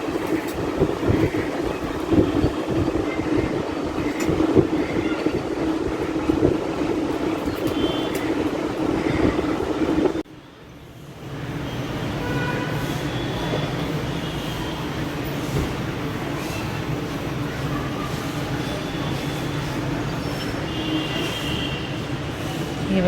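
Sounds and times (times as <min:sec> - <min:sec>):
rumbling background noise: 0:00.0 - 0:10.3.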